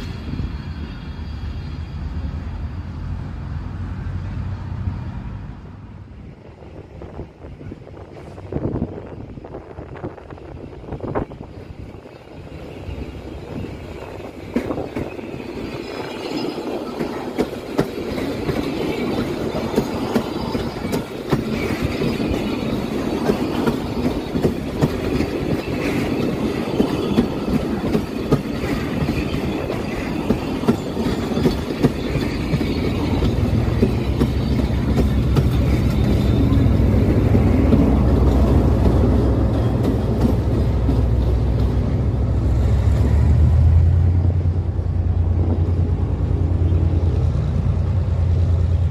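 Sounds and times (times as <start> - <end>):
locomotive engine drone: 0.0 - 48.9
train wheels clacking over rail joints: 13.4 - 42.5.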